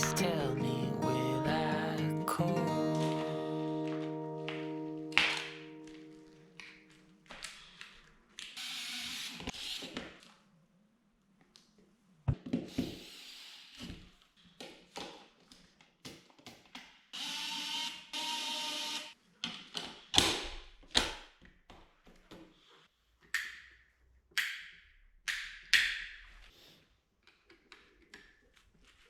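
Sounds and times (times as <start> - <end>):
small electric motor running: 17.2 - 19.1.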